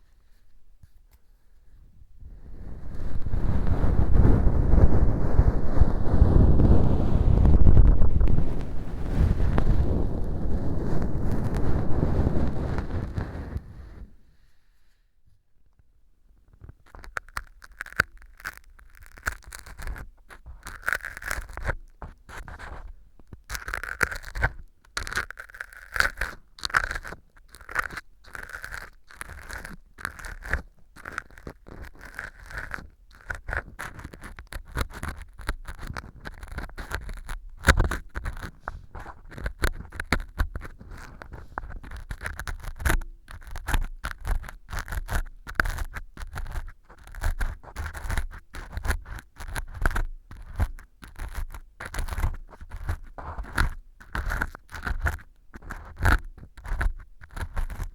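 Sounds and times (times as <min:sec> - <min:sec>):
ear pick scraping and crunching: 0:02.7 - 0:14.3, 0:16.4 - 0:57.9.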